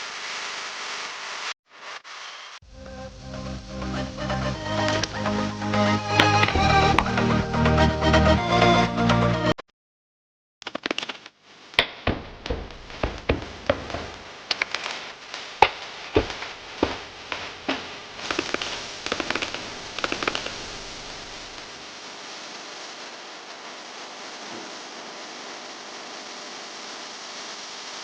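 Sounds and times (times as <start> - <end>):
steady hiss: 0.0 - 7.7, 11.5 - 28.0
sharp clicks and knocks: 10.6 - 15.0, 15.6 - 20.6.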